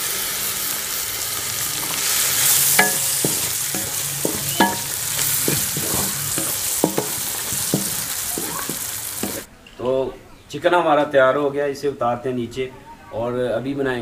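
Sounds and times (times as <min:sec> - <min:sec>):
meat sizzling in oil: 0:00.0 - 0:09.5
wooden spoon scraping and knocking pan: 0:01.7 - 0:09.5.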